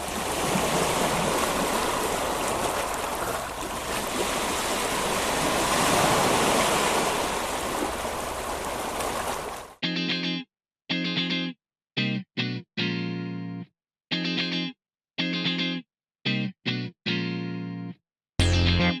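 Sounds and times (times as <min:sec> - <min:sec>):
waves washing onto beach: 0:00.0 - 0:09.8.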